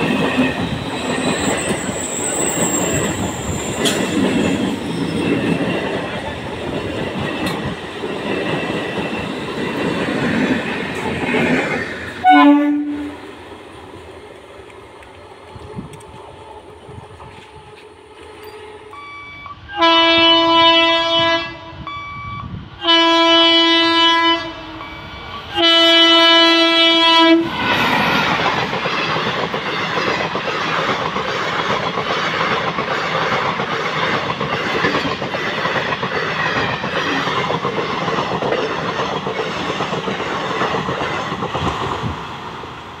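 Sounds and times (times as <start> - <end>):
train rushing past: 0.0 - 43.0
locomotive air horn blasts: 12.2 - 13.2, 18.7 - 27.5.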